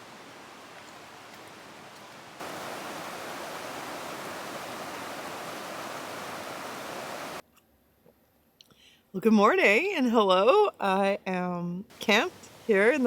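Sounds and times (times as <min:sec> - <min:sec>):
flowing river water: 0:00.0 - 0:07.4, 0:11.9 - 0:13.0.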